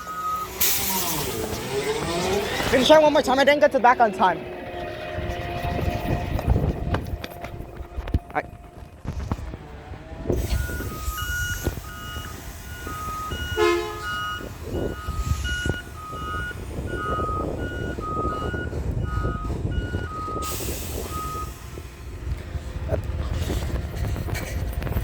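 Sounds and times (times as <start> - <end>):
backup alarm beeping: 0.0 - 0.7, 10.4 - 21.7
diesel engine running: 0.0 - 25.0.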